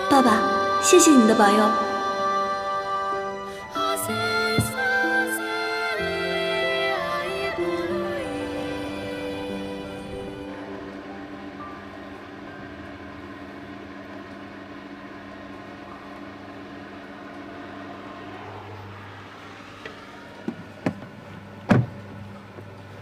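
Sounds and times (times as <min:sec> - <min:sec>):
low background rumble: 0:00.0 - 0:23.0
sharp knocks: 0:21.7 - 0:22.0.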